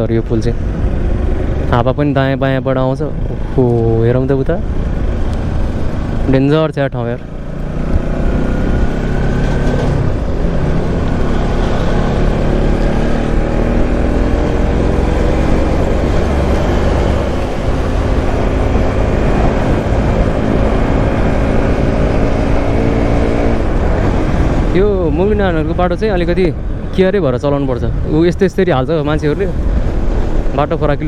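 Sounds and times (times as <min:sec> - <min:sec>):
motorcycle engine running: 0:03.0 - 0:06.5, 0:07.2 - 0:27.7
wind noise on microphone: 0:07.8 - 0:27.2, 0:27.8 - 0:31.0.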